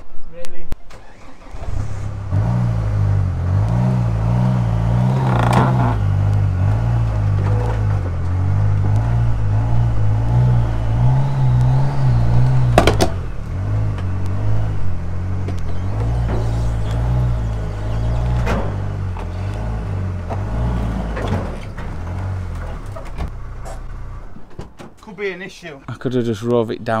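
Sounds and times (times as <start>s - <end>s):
diesel engine running: 0.9s - 24.6s.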